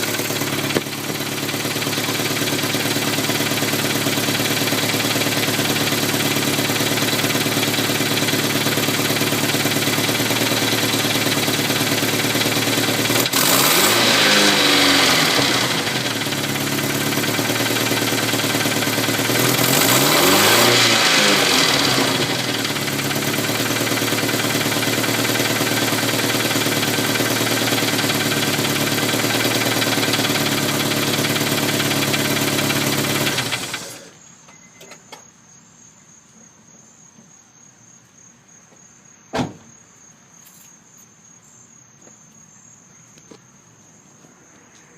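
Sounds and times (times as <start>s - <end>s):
engine revving: 0.0s - 34.1s
car engine idling with ticking: 0.0s - 34.3s.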